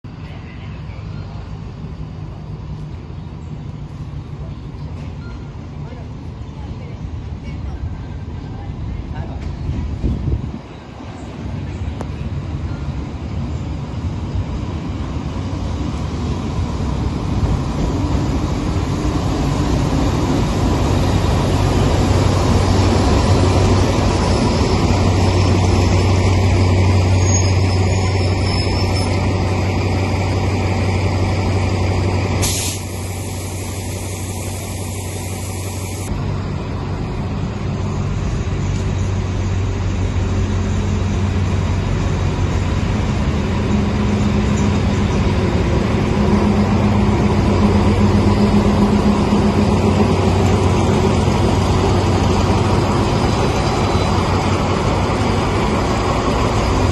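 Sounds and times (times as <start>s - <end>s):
locomotive engine hum: 0.1s - 56.9s
air brakes hissing: 32.4s - 36.1s.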